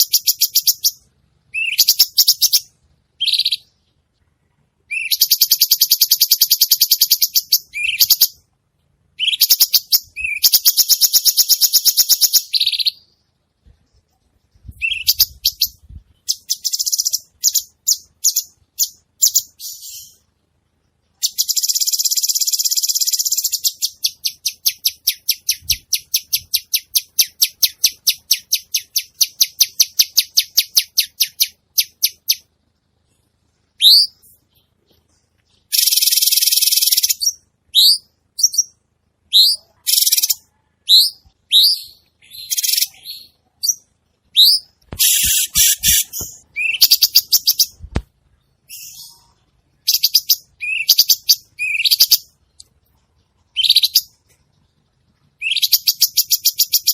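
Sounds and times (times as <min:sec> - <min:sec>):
bird sharp chirps: 0:00.0 - 0:03.9, 0:04.9 - 0:08.4, 0:09.2 - 0:13.2, 0:14.6 - 0:20.3, 0:33.8 - 0:54.2, 0:55.4 - 0:56.9
songbird buzzy trills: 0:00.0 - 0:56.9.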